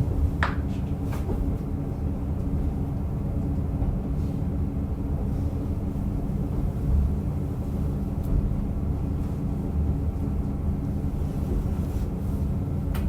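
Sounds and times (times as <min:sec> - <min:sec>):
railcar engine and wheels rumbling: 0:00.0 - 0:13.0.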